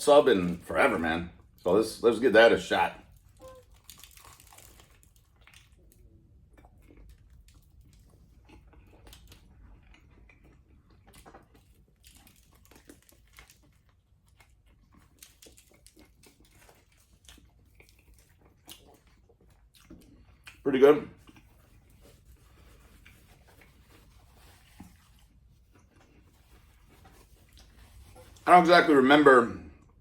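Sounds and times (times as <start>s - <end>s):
chewing and biting food: 3.2s - 20.6s, 21.2s - 28.4s.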